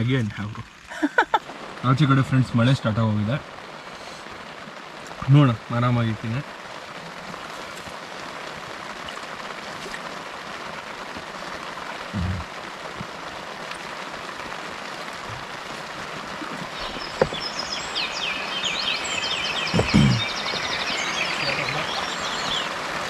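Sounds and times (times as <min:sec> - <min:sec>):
steady rain falling: 0:00.0 - 0:23.0
bird chirping rapidly: 0:16.7 - 0:22.8.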